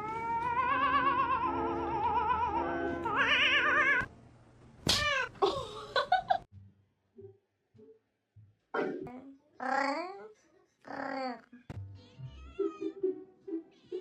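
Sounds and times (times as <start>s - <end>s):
cat meowing: 0.0s - 4.1s
cat yowling: 0.0s - 4.1s
music: 1.4s - 3.2s, 6.5s - 9.1s, 11.5s - 14.0s.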